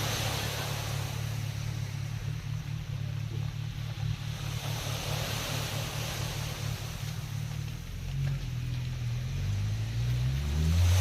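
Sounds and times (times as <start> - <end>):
sea surf: 0.0 - 8.0, 10.3 - 11.0
engine rumbling: 0.0 - 11.0.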